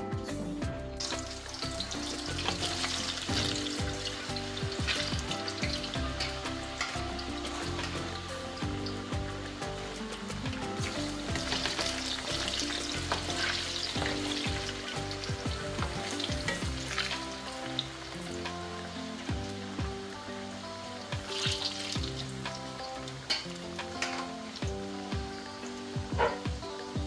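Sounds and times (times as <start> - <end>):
soft background music: 0.0 - 27.0
plantain sizzling in hot oil: 0.8 - 27.0
spatula stirring: 1.1 - 18.6.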